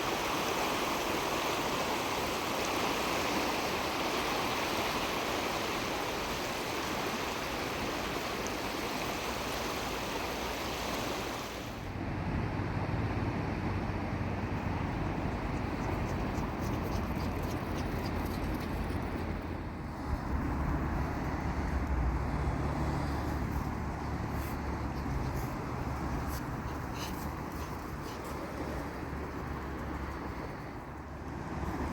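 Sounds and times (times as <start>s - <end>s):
ocean surf: 0.0s - 12.0s.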